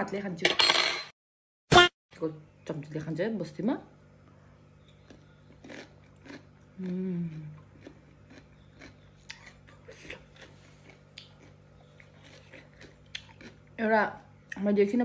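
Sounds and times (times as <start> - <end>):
crunchy chewing: 4.8 - 13.8.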